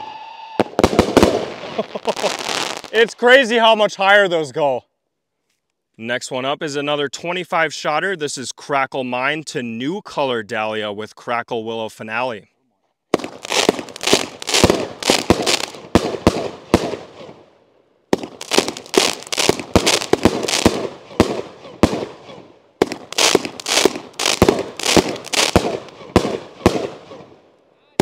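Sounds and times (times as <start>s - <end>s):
fireworks launching and bursting: 0.0s - 3.9s, 13.1s - 28.0s.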